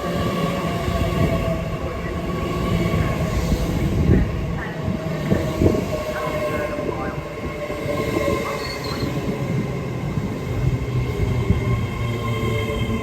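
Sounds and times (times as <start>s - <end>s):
train rumbling with whining tones: 0.0s - 13.0s
high-pitched train squeal: 3.0s - 9.5s.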